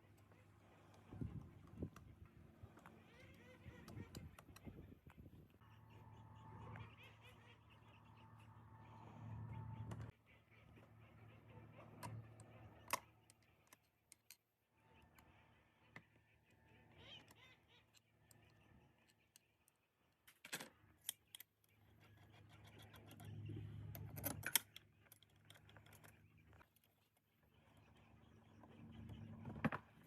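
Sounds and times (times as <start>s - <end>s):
low hum: 5.6s - 12.8s.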